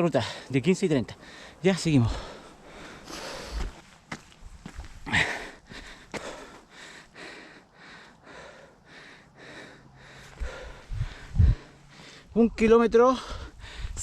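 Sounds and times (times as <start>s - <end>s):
runner breathing hard: 1.1s - 4.0s, 4.7s - 12.4s, 13.1s - 14.0s
footfalls on dirt trail: 3.1s - 6.5s.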